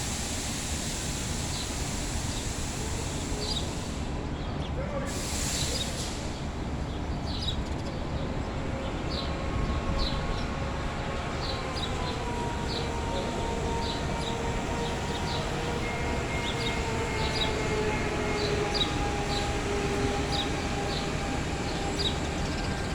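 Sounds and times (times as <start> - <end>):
small birds chirping: 6.9 - 22.9.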